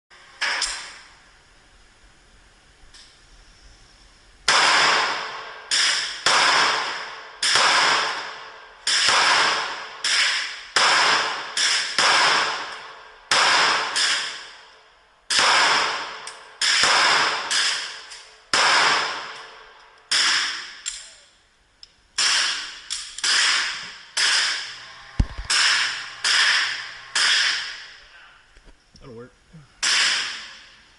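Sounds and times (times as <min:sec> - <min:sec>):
pistol gunshots echoing: 0:04.5 - 0:14.7, 0:15.3 - 0:21.0, 0:22.2 - 0:28.0, 0:29.8 - 0:30.7.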